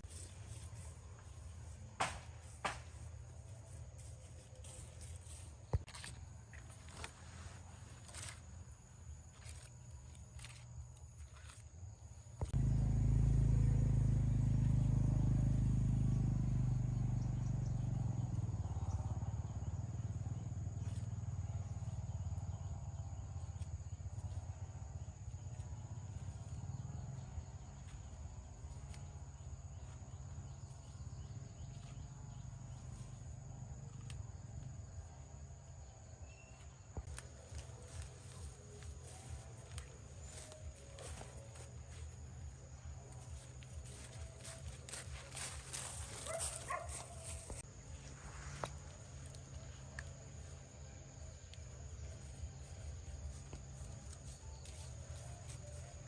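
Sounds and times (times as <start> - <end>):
low motor rumble: 11.9 - 56.0.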